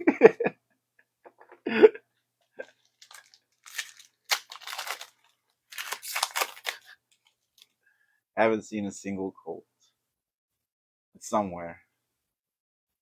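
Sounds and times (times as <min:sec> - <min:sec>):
foil wrapper crinkling and tearing: 0:02.6 - 0:07.7.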